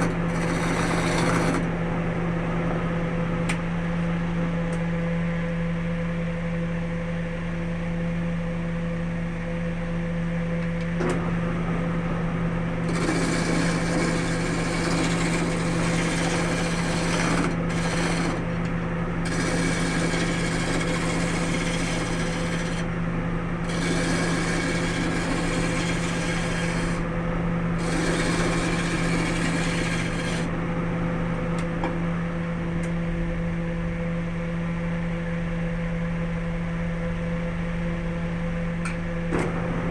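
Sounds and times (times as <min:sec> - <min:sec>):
tool cutting spinning wood: 0:00.0 - 0:01.7, 0:12.8 - 0:22.9, 0:23.6 - 0:27.1, 0:27.7 - 0:30.5
wood lathe motor humming: 0:00.0 - 0:01.7, 0:12.8 - 0:22.9, 0:23.6 - 0:27.1, 0:27.7 - 0:30.5.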